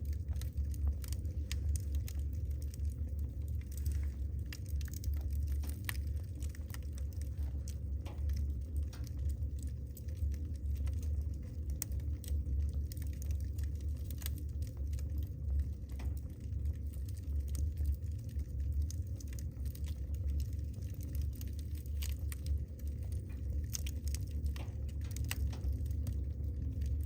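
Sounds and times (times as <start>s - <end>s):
low fire rumble: 0.0s - 27.0s
wood fire crackling: 0.0s - 27.0s.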